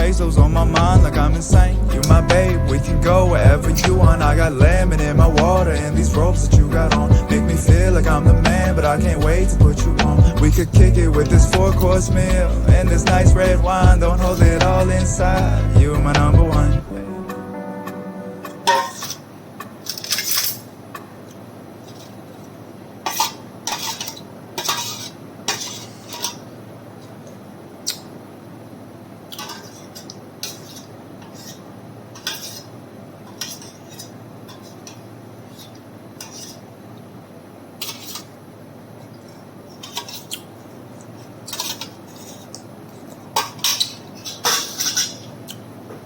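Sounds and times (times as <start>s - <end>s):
low background noise: 0.0s - 46.0s
utensils clinking against dishes: 13.0s - 15.1s, 18.4s - 21.1s, 21.8s - 26.5s, 29.3s - 31.6s, 32.2s - 32.7s, 33.3s - 36.6s, 37.8s - 38.3s, 39.7s - 40.5s, 41.2s - 45.6s.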